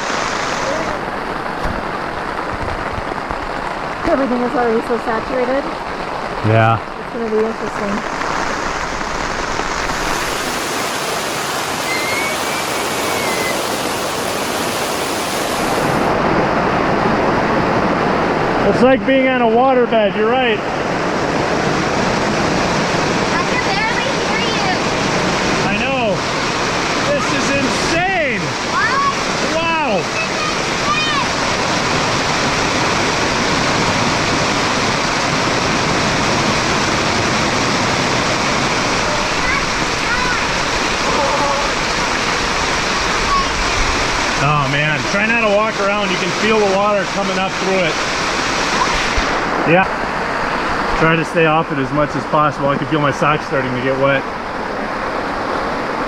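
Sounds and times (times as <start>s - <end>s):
heavy rain on a tent: 0.0s - 56.0s.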